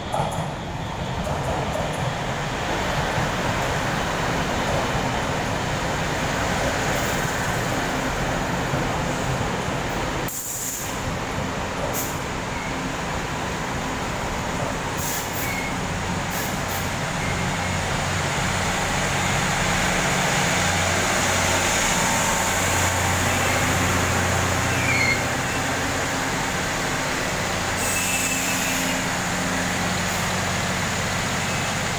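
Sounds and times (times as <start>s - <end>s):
train wheels rumbling on rail: 0.0s - 31.9s
brief high squeaks: 24.7s - 25.3s.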